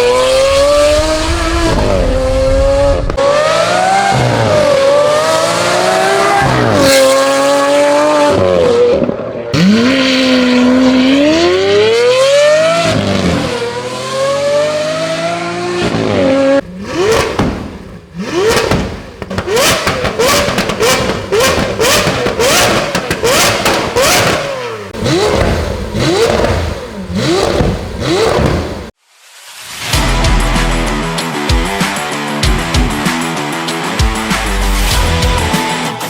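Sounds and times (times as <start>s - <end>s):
sports car engine revving: 0.0s - 29.0s
exhaust cracks and pops: 16.6s - 29.0s.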